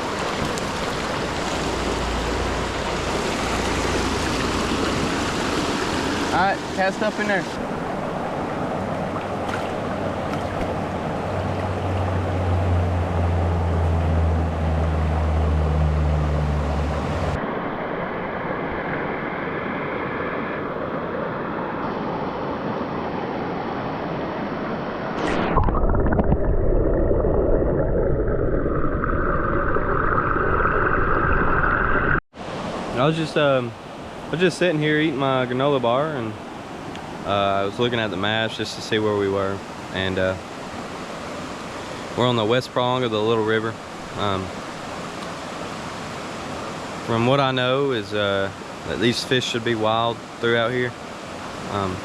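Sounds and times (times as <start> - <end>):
river water rushing over rocks: 0.0 - 12.5.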